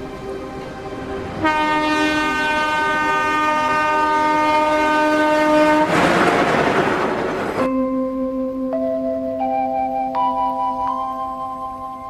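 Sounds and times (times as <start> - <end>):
train horn: 1.4 - 7.3.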